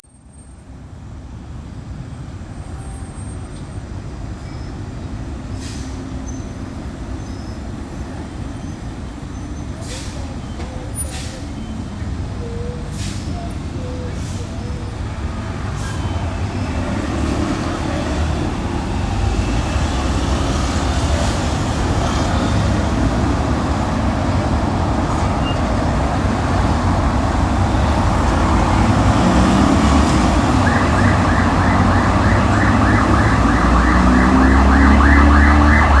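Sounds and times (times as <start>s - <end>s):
traffic noise: 0.0s - 36.0s
heavy truck engine rumbling: 3.8s - 36.0s
pulsing siren: 29.8s - 36.0s.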